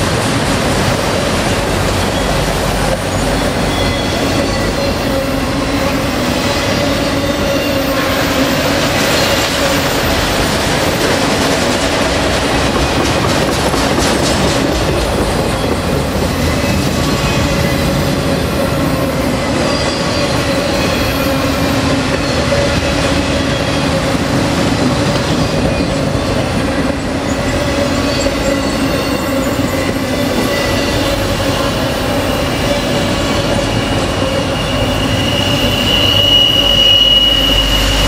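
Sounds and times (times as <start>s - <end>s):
train wheel squeal: 1.5s - 38.0s
wheels clacking over rail joints: 8.6s - 18.2s.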